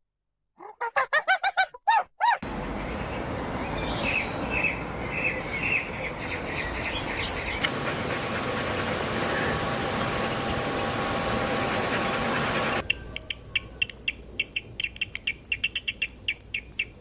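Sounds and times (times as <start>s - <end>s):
outdoor noise: 0.4s - 17.0s
small bird chirps: 12.8s - 17.0s.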